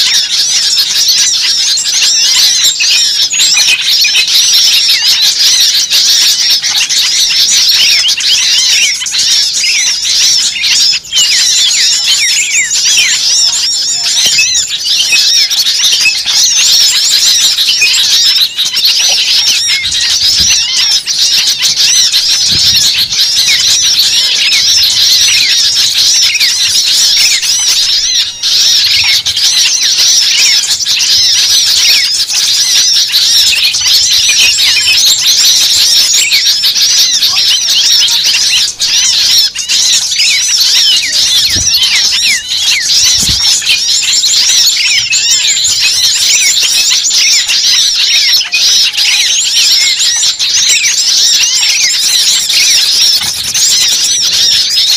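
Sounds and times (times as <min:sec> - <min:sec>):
many birds chirping: 0:00.0 - 0:54.9.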